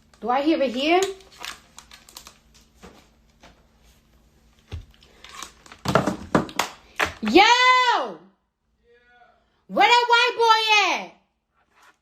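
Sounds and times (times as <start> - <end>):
rustling and crinkling: 0.8 - 6.0.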